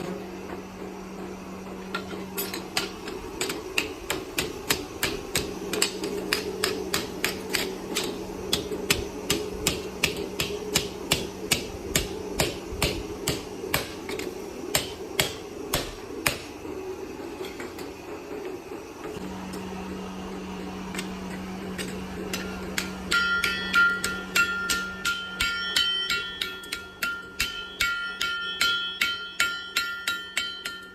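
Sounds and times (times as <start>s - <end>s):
steady machine hum: 0.0s - 30.9s
hammer striking: 1.9s - 16.6s, 20.9s - 30.9s.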